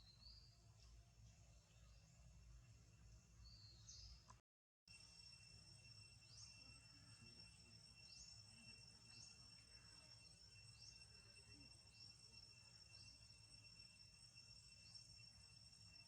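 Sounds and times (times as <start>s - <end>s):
high insect drone: 4.9s - 16.0s.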